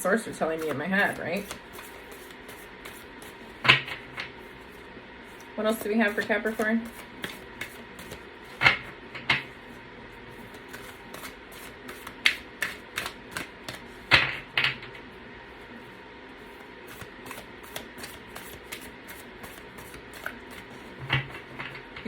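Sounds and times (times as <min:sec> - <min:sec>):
cards being shuffled: 0:00.4 - 0:08.8, 0:10.3 - 0:14.1, 0:16.5 - 0:21.6.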